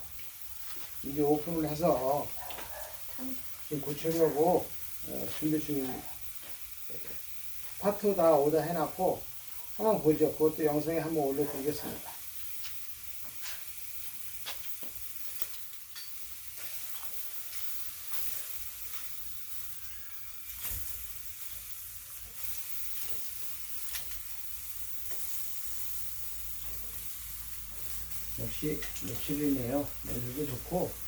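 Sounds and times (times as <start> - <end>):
crackles and pops: 0.0 - 31.0
meat sizzling over charcoal: 0.0 - 31.0.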